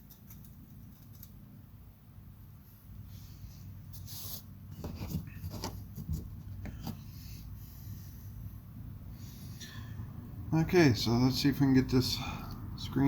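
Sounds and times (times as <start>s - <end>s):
small metal parts clicking: 0.0s - 1.4s
steady low hum: 0.0s - 13.0s.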